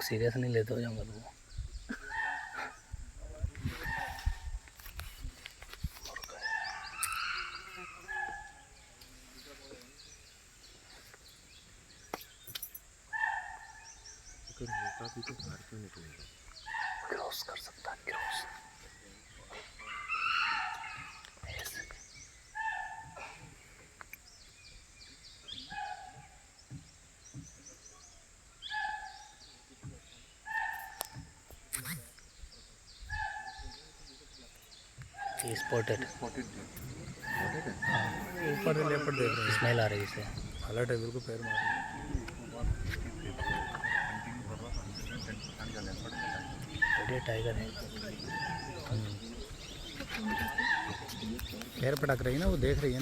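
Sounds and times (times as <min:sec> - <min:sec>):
small birds chirping: 0:00.0 - 0:53.0
shrill animal call: 0:06.4 - 0:08.7, 0:19.8 - 0:21.3, 0:37.2 - 0:40.3, 0:41.4 - 0:42.3
short wild animal calls: 0:19.6 - 0:21.3.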